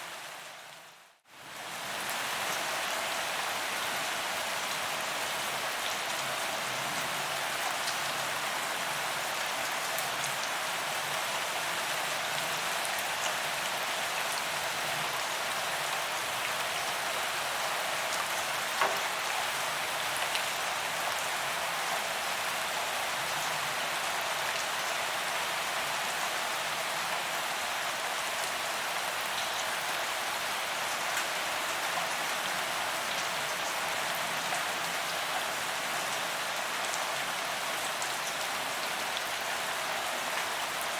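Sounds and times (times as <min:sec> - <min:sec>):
rain pattering on pavement: 0:02.0 - 0:21.7.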